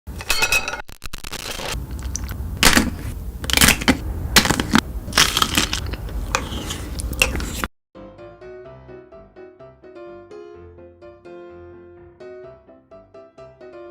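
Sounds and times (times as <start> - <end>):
crunching of chocolate snacks: 1.3 - 7.7
low rumble: 1.8 - 6.4.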